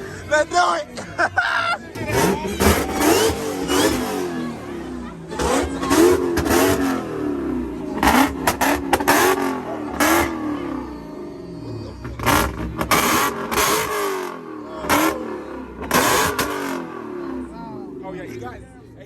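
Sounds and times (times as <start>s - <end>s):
car engine revving hard: 1.9s - 17.7s
exhaust cracks: 2.0s - 10.4s.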